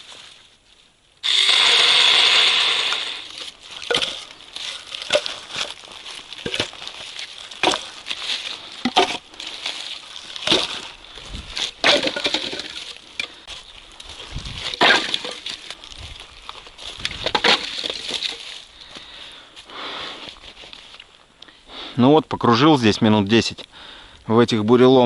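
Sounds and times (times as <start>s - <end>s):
loppers rustling branches: 0.0s - 21.8s
branches snapping: 1.2s - 19.1s.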